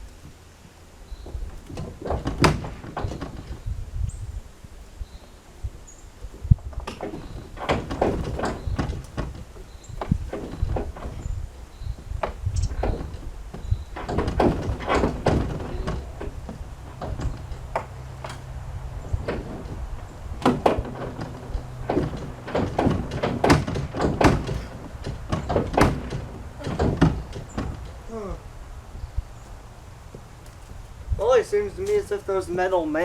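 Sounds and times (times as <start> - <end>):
metal thunks and clanks: 1.1 - 4.2, 6.2 - 28.4.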